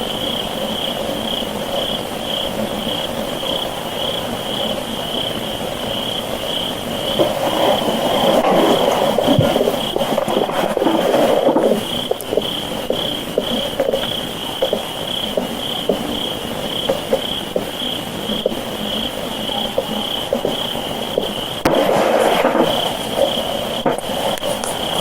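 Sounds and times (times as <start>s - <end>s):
high pulsing insect chirp: 0.0s - 25.0s
rushing noise: 0.0s - 25.0s.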